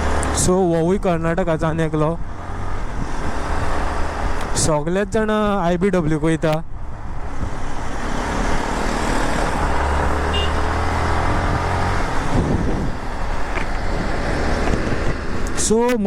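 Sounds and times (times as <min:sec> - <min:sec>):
vehicle passing: 0:00.0 - 0:01.2, 0:06.8 - 0:15.6
motorcycle engine hum: 0:00.0 - 0:15.8
rushing wind: 0:00.0 - 0:16.0
traffic: 0:00.0 - 0:16.0.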